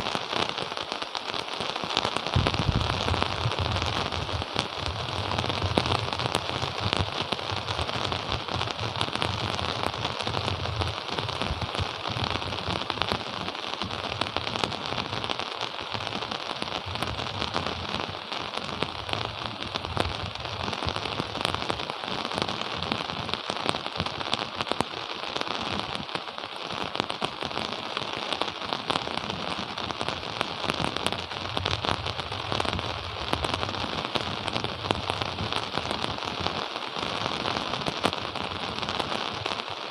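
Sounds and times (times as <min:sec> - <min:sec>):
steady rain falling: 0:00.0 - 0:39.9
raindrop impacts close by: 0:02.3 - 0:07.9.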